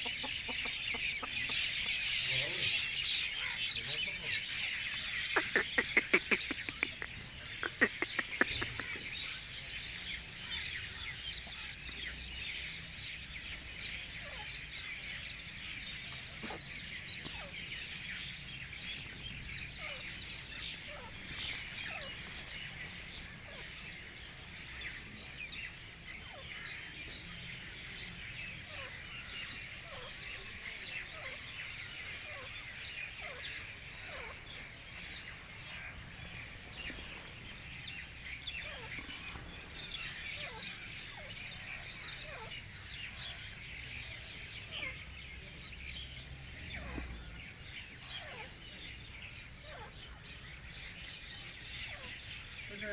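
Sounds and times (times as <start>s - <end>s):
short falling bird calls: 0.0s - 9.4s, 16.3s - 17.0s, 18.1s - 42.7s
small birds chirping: 0.0s - 52.9s.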